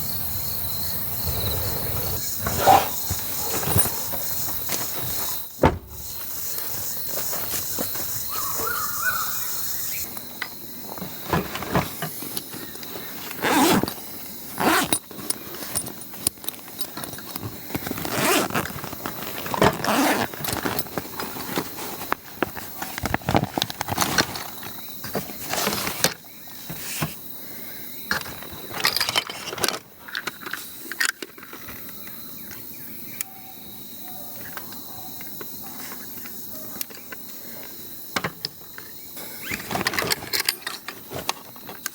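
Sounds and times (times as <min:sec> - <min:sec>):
high-pitched insect drone: 0:00.0 - 0:11.0
objects knocking and scraping: 0:02.2 - 0:06.2, 0:10.9 - 0:14.0, 0:28.1 - 0:31.8.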